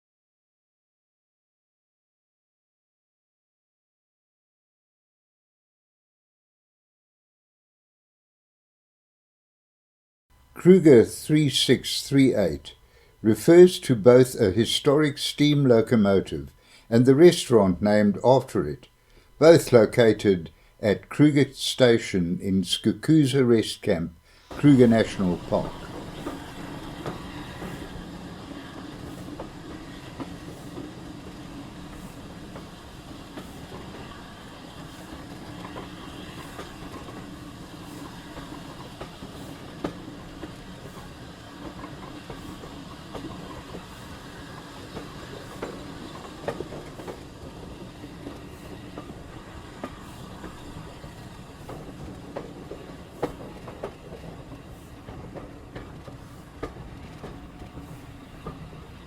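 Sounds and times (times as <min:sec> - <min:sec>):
sharp clicks from wheels and rails: 0:24.4 - 0:59.0
train rumble: 0:24.4 - 0:59.0.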